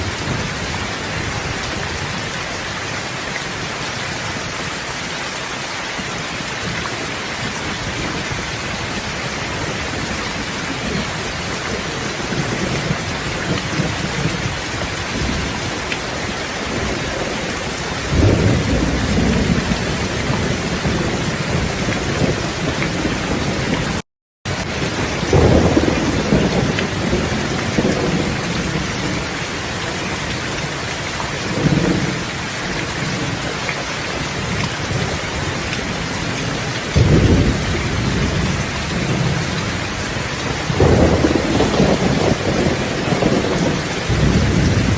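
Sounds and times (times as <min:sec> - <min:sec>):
rolling thunder: 0:07.7 - 0:24.0, 0:24.7 - 0:29.4, 0:34.3 - 0:44.9.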